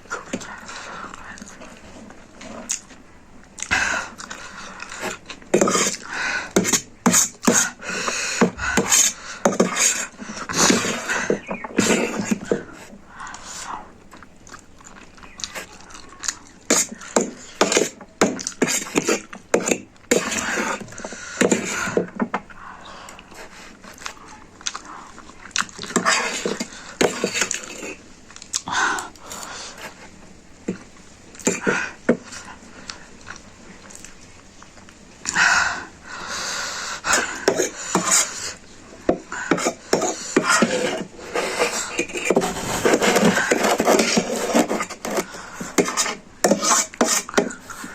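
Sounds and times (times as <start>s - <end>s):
person chewing: 1.0s - 21.7s, 23.0s - 30.0s, 32.3s - 35.4s.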